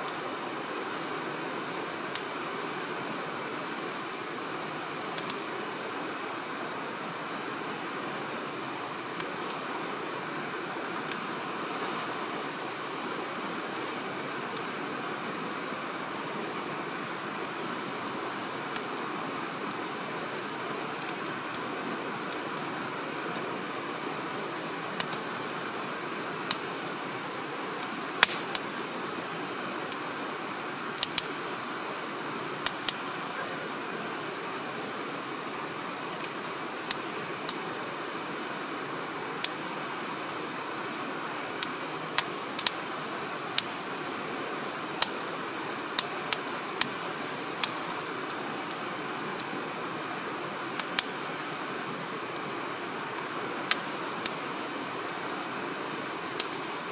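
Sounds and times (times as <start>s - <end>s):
firewood crackling: 0.0s - 56.9s
burning wood popping: 4.9s - 5.4s, 19.7s - 29.9s, 30.9s - 31.6s, 41.4s - 42.8s, 45.0s - 49.8s, 50.4s - 51.2s, 56.2s - 56.7s.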